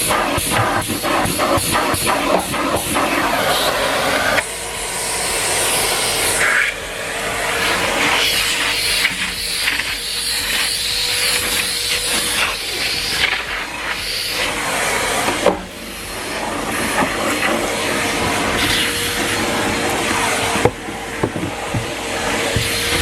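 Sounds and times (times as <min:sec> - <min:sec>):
vacuum floor tool knocking: 0:00.0 - 0:03.2, 0:07.6 - 0:23.0
vacuum cleaner running: 0:00.0 - 0:23.0.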